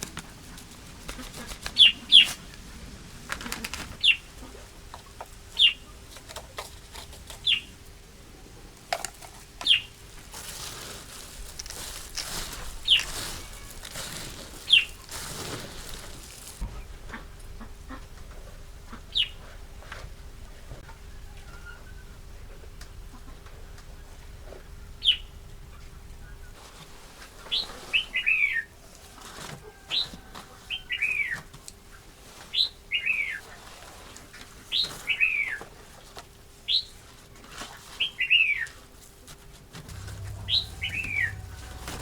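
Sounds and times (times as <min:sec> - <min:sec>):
soft rustling: 0:10.0 - 0:16.8.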